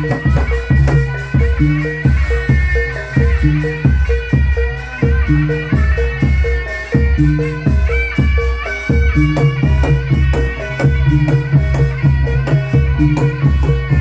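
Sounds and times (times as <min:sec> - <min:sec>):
traditional folk ensemble music: 0:00.0 - 0:14.0.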